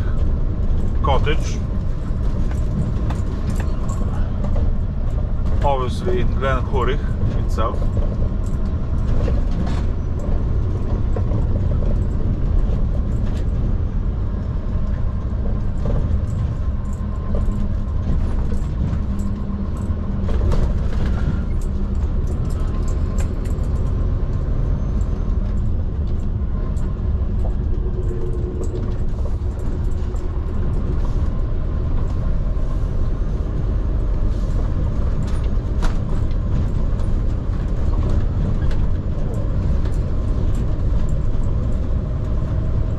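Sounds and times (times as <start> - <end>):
lorry diesel engine rumble: 0.0 - 42.9.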